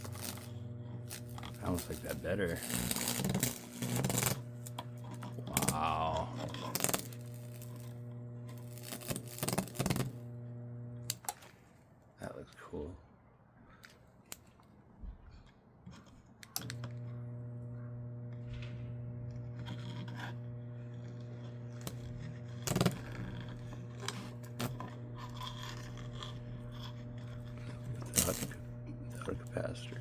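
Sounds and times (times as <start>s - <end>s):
transformer humming: 0.0s - 11.2s, 16.6s - 30.0s
high-voltage arcing crackles: 0.0s - 11.3s, 16.6s - 30.0s
faint handling clicks: 15.9s - 30.0s.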